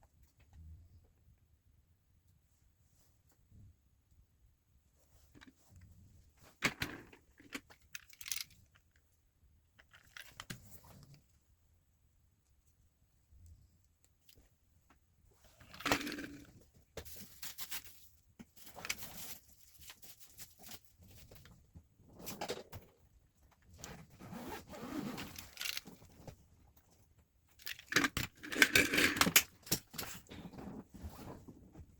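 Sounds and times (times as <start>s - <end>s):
objects handled by hand: 13.4s - 31.9s.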